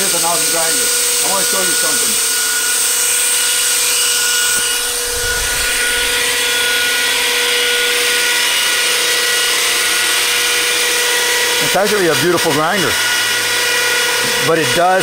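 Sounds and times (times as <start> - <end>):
belt grinder motor whine: 0.0 - 15.0
brief low rumble: 4.6 - 7.2.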